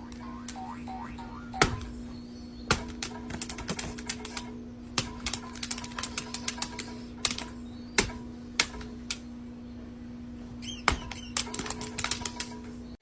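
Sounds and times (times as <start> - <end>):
high chirps: 0.0 - 2.7
low steady hum: 0.0 - 13.0.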